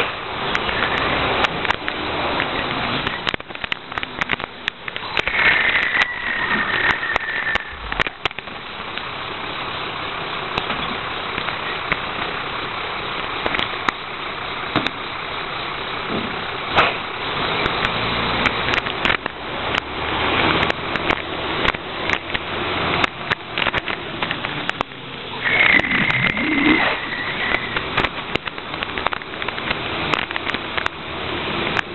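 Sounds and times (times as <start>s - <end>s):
mechanical rush: 0.0s - 9.0s, 16.3s - 31.9s
low engine hum: 0.0s - 31.9s
high squeal: 5.0s - 8.2s, 25.4s - 27.8s.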